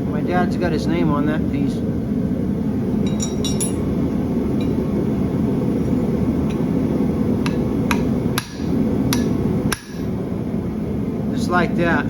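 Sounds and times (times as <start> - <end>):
hammer tapping steel on anvil: 3.0 - 3.9, 7.4 - 10.0.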